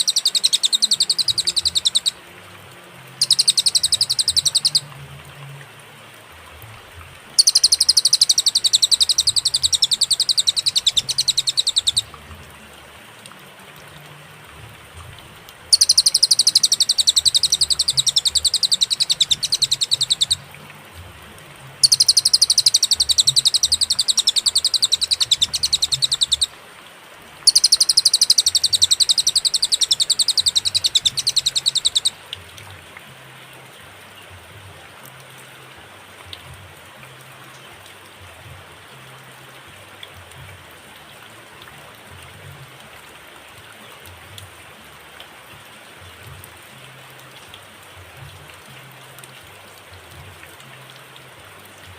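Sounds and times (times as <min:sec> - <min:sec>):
songbird high-pitched trill: 0:00.0 - 0:02.2, 0:03.2 - 0:04.9, 0:07.4 - 0:12.2, 0:15.7 - 0:20.5, 0:21.8 - 0:26.5, 0:27.5 - 0:32.2.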